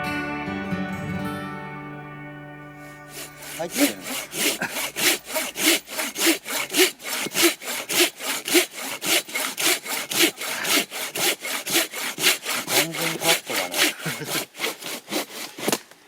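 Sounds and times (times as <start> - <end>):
hand saw cutting wood: 2.8 - 16.0.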